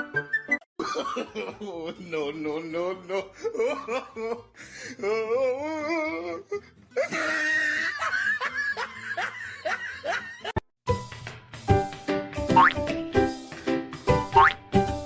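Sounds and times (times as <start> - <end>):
person laughing: 3.1 - 6.4, 7.0 - 10.6.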